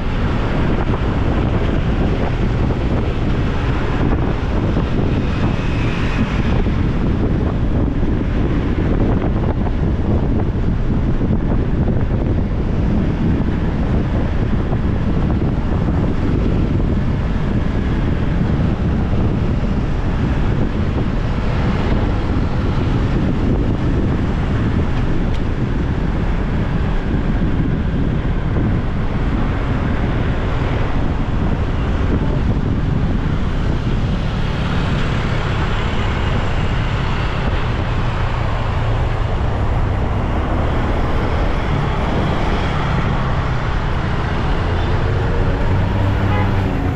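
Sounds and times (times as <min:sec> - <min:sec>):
road traffic: 0:00.0 - 0:46.9
wind buffeting microphone: 0:00.0 - 0:46.9.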